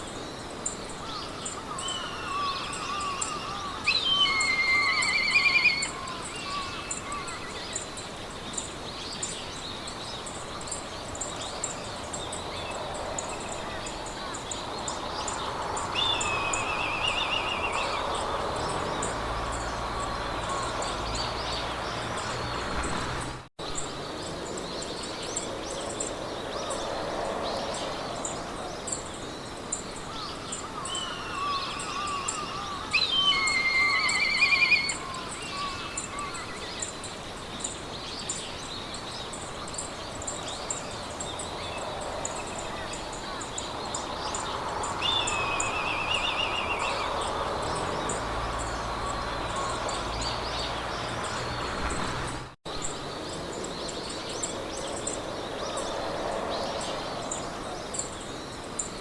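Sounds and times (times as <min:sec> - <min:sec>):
wind hiss: 0:00.0 - 0:59.0
songbirds singing trilled phrases: 0:01.2 - 0:22.7, 0:30.1 - 0:55.9.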